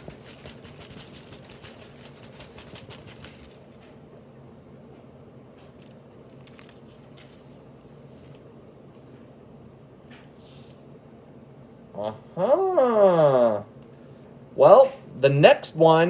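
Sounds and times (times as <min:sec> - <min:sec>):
hand rustling in a hat: 0:00.0 - 0:03.9.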